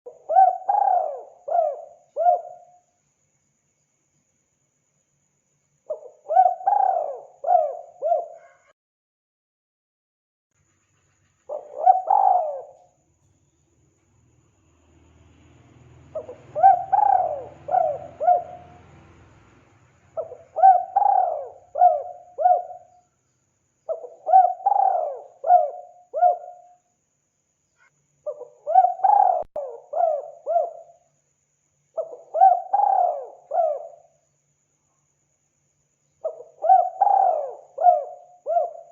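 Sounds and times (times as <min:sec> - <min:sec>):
dove cooing: 0:00.1 - 0:02.8, 0:05.9 - 0:08.7, 0:11.5 - 0:12.9, 0:16.1 - 0:19.0, 0:20.2 - 0:23.0, 0:23.9 - 0:26.7, 0:28.3 - 0:31.0, 0:32.0 - 0:34.1, 0:36.2 - 0:38.9.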